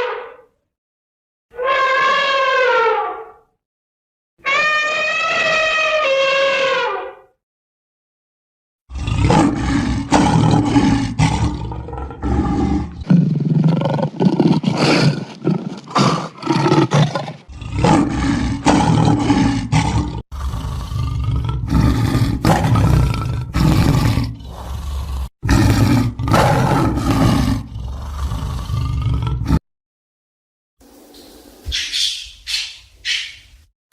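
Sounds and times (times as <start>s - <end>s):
lion roaring and growling: 8.9s - 29.6s.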